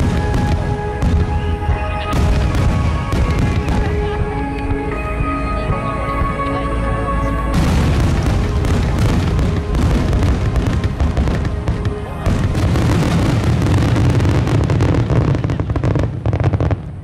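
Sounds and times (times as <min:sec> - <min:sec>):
fireworks booms and crackling: 0:00.0 - 0:05.3, 0:07.5 - 0:17.0.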